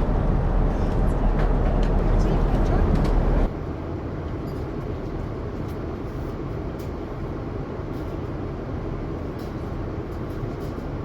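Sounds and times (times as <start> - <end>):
airliner cabin noise: 0.0 - 11.0.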